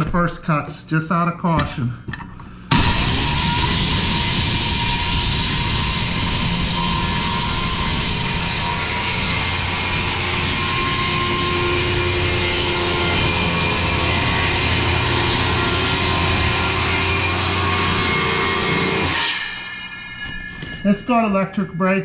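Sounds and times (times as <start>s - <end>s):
circular saw cutting wood: 2.7s - 21.3s.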